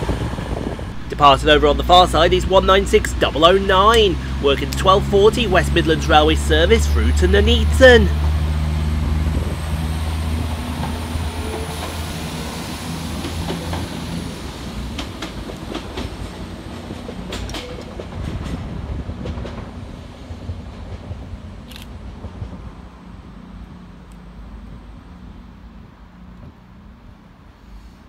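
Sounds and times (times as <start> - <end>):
diesel train engines running: 0.0 - 28.0
train wheels clicking over joints: 10.7 - 22.6.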